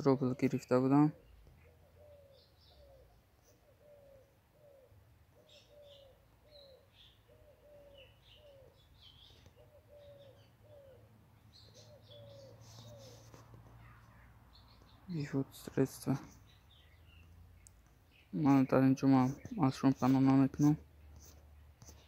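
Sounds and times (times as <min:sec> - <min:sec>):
birds chirping: 0:00.0 - 0:22.0
bird cooing: 0:01.1 - 0:14.1.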